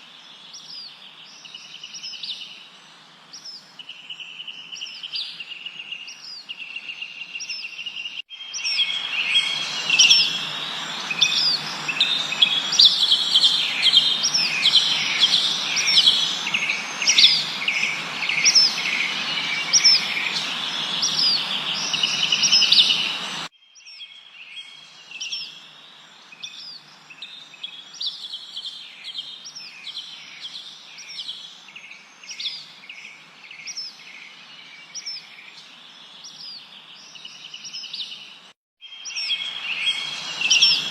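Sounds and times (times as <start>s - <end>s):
birds chirping and whistling: 4.2s - 25.7s, 36.2s - 40.9s
steady hiss: 8.6s - 23.5s.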